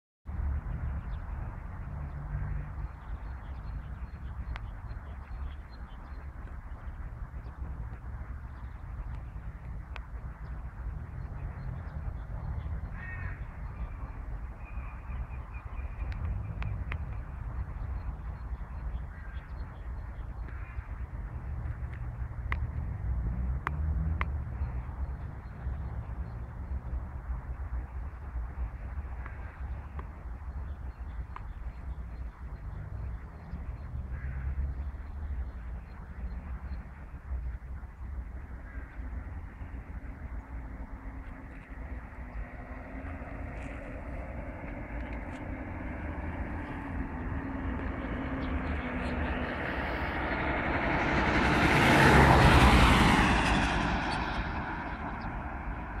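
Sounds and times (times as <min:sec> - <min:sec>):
wind rumbling on microphone: 0:00.3 - 0:56.0
vehicle passing by: 0:21.3 - 0:28.6, 0:39.0 - 0:56.0.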